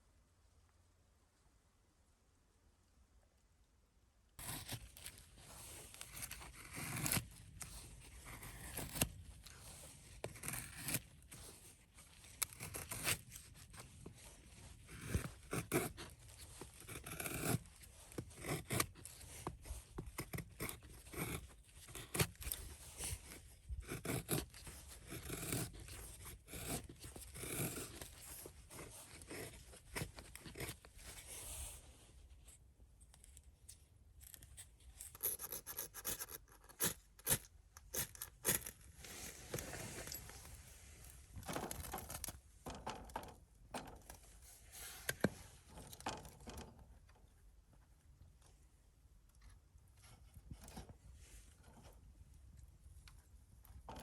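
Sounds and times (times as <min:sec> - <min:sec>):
objects scraping and rubbing: 0:35.0 - 0:43.2.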